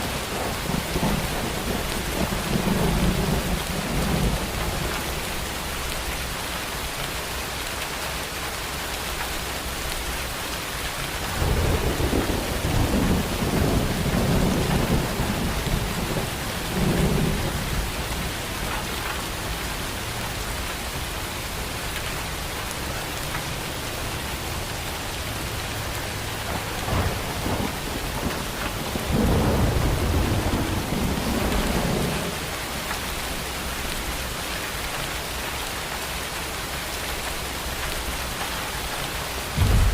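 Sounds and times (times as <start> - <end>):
heavy rain falling: 0.0 - 39.9
rolling thunder: 0.2 - 5.2, 11.2 - 18.8, 26.4 - 32.4, 39.5 - 39.9.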